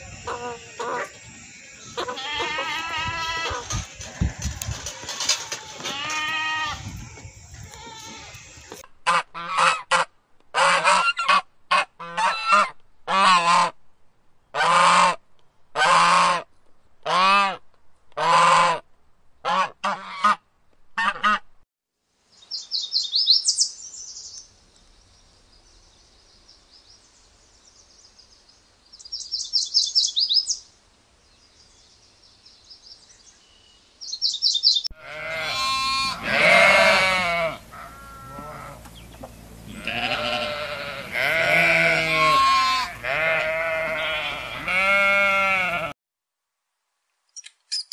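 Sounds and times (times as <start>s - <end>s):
geese honking: 0.0s - 6.8s, 35.0s - 45.9s
sheep bleating: 2.0s - 6.8s, 7.7s - 8.4s, 34.9s - 38.9s, 39.7s - 46.0s.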